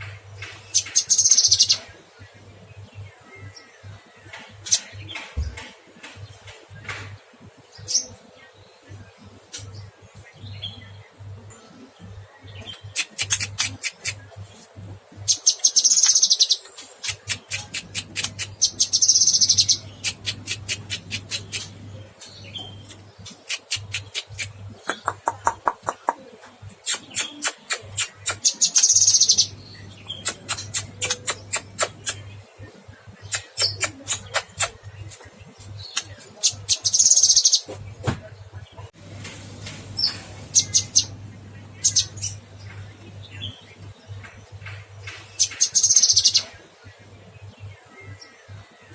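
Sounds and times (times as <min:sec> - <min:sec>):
songbird singing rapid notes: 0:00.7 - 0:05.6, 0:15.2 - 0:39.0, 0:40.0 - 0:48.9
faint low hum: 0:37.8 - 0:45.8.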